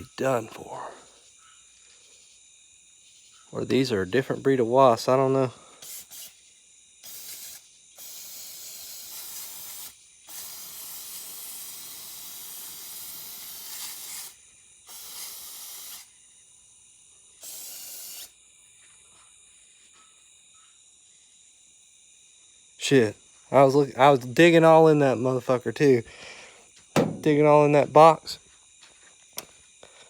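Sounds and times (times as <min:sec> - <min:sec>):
aerosol can spraying: 0:05.8 - 0:06.4, 0:07.0 - 0:16.1, 0:17.4 - 0:18.3.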